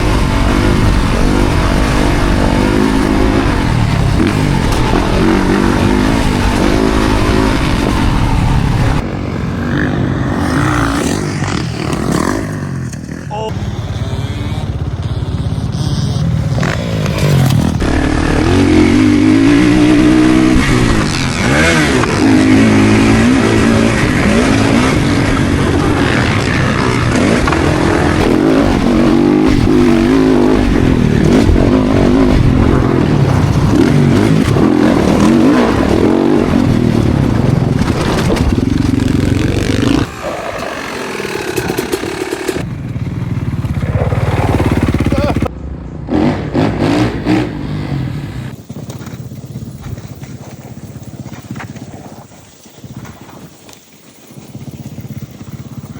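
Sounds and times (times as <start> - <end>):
motocross bike engine revving: 0.0 - 50.6.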